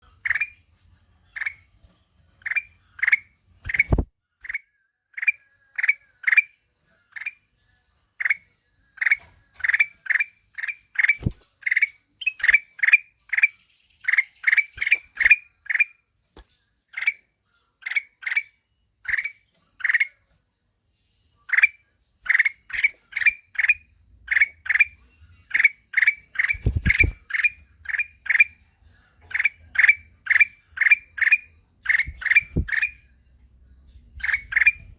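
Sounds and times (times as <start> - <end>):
high insect drone: 0.0 - 34.9
bulbul calling: 2.4 - 4.6, 8.2 - 17.2, 21.5 - 28.6, 29.2 - 33.1, 34.1 - 34.9.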